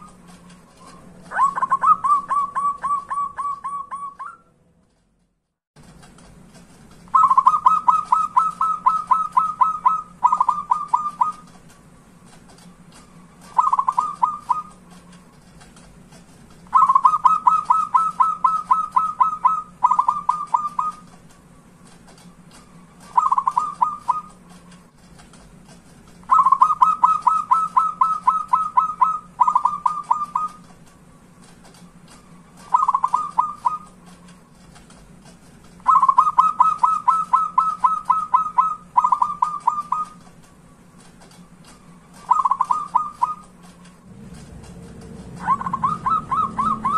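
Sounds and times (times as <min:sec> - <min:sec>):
dove cooing: 0:00.8 - 0:04.4, 0:07.1 - 0:11.5, 0:13.4 - 0:14.8, 0:16.7 - 0:21.1, 0:23.1 - 0:24.4, 0:26.3 - 0:30.6, 0:32.6 - 0:34.0, 0:35.8 - 0:40.2, 0:42.2 - 0:43.5, 0:45.2 - 0:46.9.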